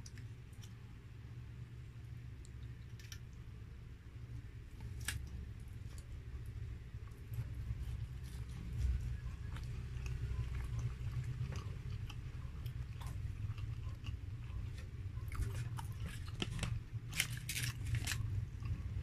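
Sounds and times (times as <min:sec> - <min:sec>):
low hum: 0:00.0 - 0:19.0
chewing with wet mouth clicks: 0:07.0 - 0:19.0.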